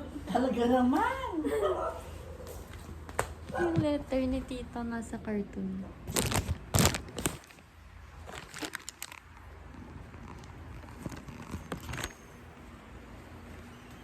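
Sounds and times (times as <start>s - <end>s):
items rustling in cardboard box: 6.1s - 9.2s.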